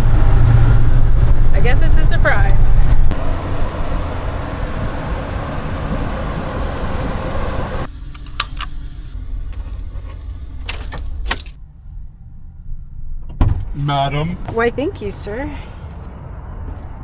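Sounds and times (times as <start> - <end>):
low rumble: 0.0 - 17.0
rushing wind and road noise: 0.0 - 17.0
sharp clicks: 8.1 - 8.8
jangle: 9.5 - 11.6.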